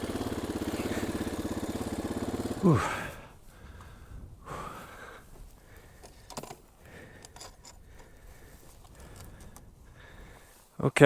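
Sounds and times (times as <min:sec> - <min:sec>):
gear clicking and rattling: 0:00.0 - 0:03.0, 0:05.3 - 0:09.9
person breathing hard: 0:00.3 - 0:10.7.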